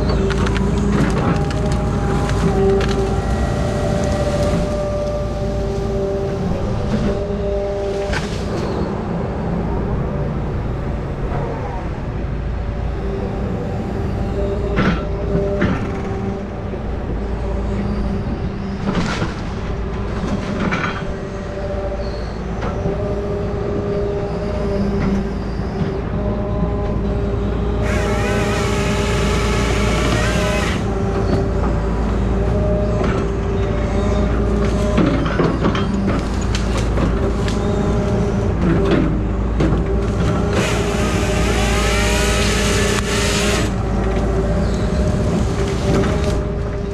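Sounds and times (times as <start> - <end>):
diesel engine running: 0.0 - 11.3, 12.0 - 46.9
saw cutting with high whine: 27.8 - 31.4, 40.2 - 46.4.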